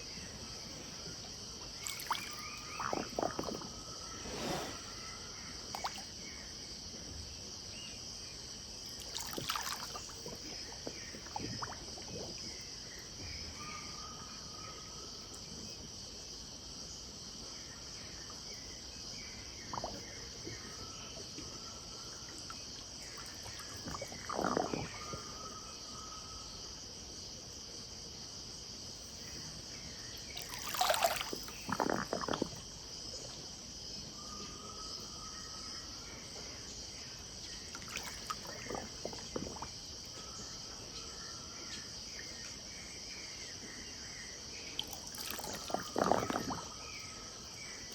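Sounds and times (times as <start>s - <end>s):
insects chorus: 0.0s - 47.9s
river water splashing: 1.8s - 3.3s, 9.0s - 10.3s, 30.4s - 32.4s, 37.8s - 39.6s, 44.8s - 46.7s.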